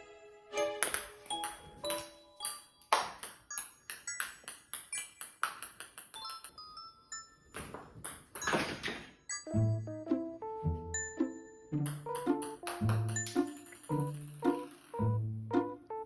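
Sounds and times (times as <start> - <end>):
background music with bell-like notes: 0.0 - 4.6, 6.2 - 7.6, 9.2 - 16.0.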